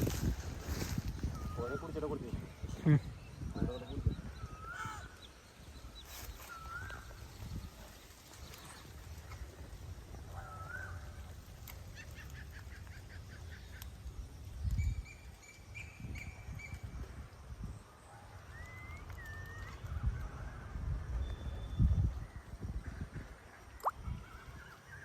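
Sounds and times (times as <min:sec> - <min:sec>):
birds calling: 0:00.0 - 0:09.4.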